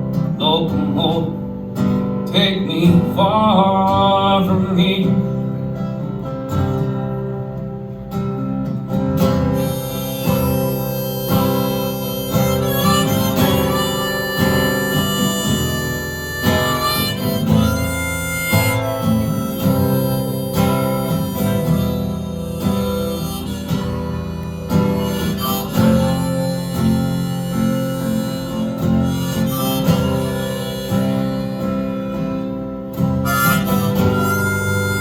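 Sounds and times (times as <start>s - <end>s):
acoustic guitar strumming: 0.0s - 35.0s
harmonica melody: 0.0s - 35.0s.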